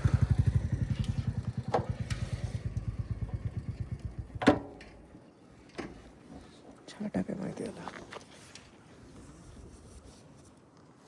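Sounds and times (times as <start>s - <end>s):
motorcycle engine ticking over: 0.0s - 5.0s.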